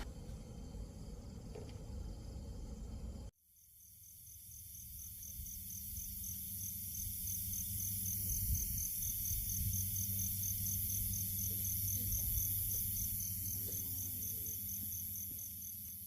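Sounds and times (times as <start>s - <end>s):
insects chirping: 0.0s - 16.0s
low wind rumble: 6.8s - 13.3s.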